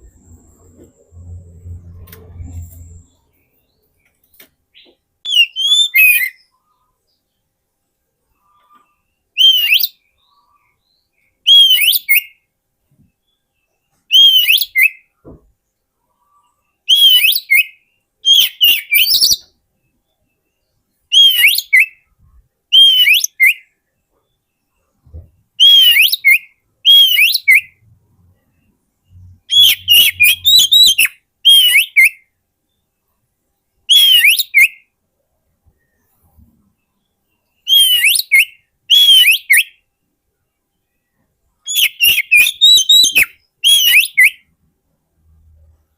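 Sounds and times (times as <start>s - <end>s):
bird whistled song: 4.8s - 6.9s, 8.4s - 12.5s, 14.1s - 15.1s, 16.3s - 22.1s, 22.7s - 32.3s, 33.9s - 34.9s, 36.9s - 39.9s, 41.0s - 44.5s.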